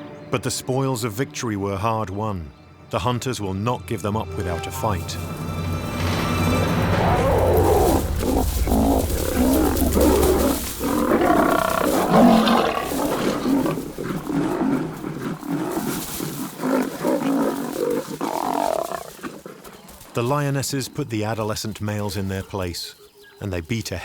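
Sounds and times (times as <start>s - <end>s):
lions roaring and growling: 5.3s - 20.8s.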